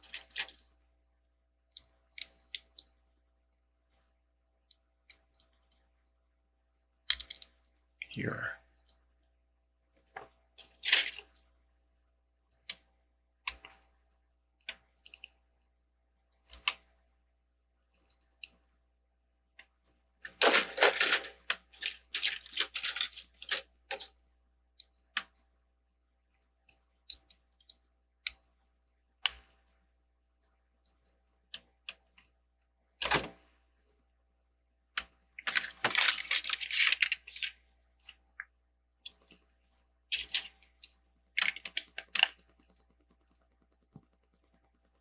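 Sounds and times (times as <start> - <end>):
plastic pieces clicking and clattering: 0.0 - 0.7, 20.3 - 24.1, 35.4 - 37.6, 40.1 - 44.6.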